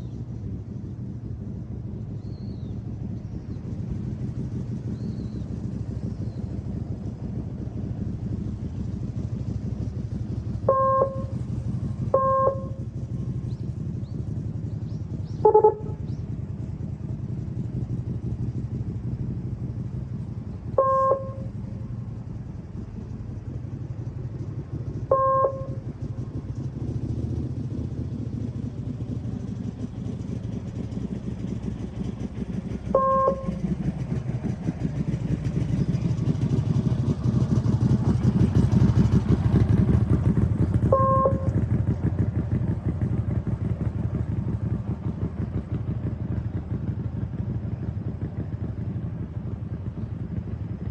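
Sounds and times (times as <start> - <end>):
motorcycle engine running: 0.0 - 50.9
low short tone: 10.6 - 12.9, 15.3 - 16.1, 20.8 - 21.6, 25.1 - 25.8, 32.9 - 33.7, 40.8 - 41.6
short electronic beeps: 10.7 - 11.3, 12.2 - 12.8, 20.8 - 21.4, 33.0 - 33.6, 41.0 - 41.5.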